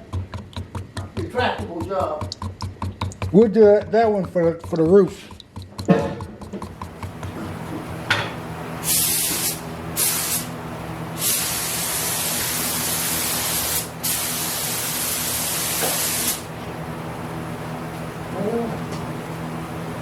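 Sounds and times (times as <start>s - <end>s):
steady low hum: 0.0s - 20.0s
paint spray gun hissing: 8.8s - 16.5s.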